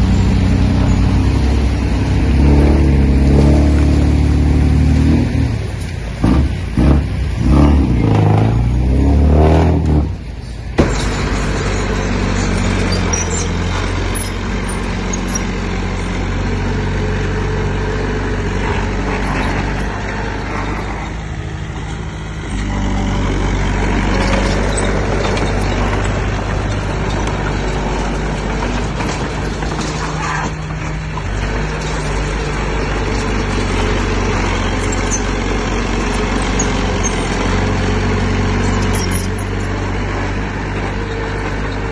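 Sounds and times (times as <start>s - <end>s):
heavy machinery diesel engine: 0.0s - 41.9s.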